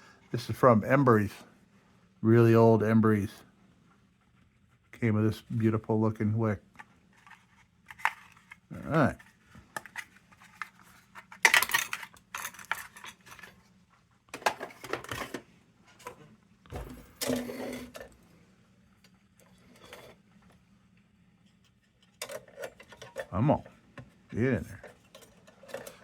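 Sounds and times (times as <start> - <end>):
metal lantern parts clicking: 11.4 - 13.5, 22.0 - 23.4, 24.8 - 26.0.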